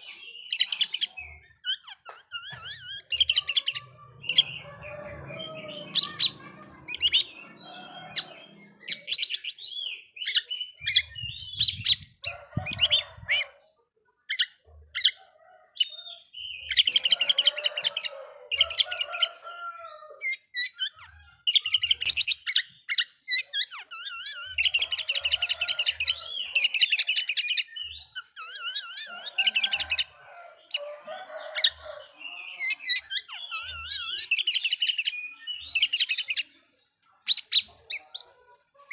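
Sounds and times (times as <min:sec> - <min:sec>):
bird singing: 0:00.0 - 0:13.6, 0:18.1 - 0:38.9.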